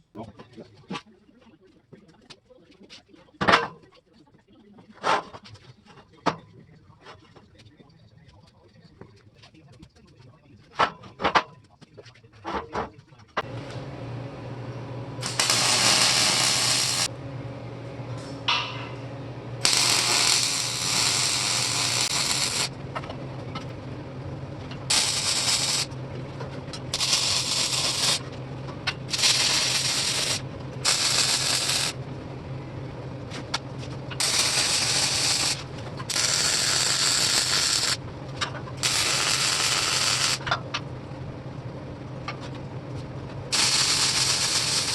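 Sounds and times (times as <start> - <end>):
welder electrical hum: 13.4 - 44.9
crackling welding arc hiss: 15.2 - 17.1, 19.6 - 22.7, 24.9 - 26.0, 26.9 - 28.3, 29.1 - 32.0, 34.2 - 38.0, 38.8 - 40.5, 43.5 - 44.9.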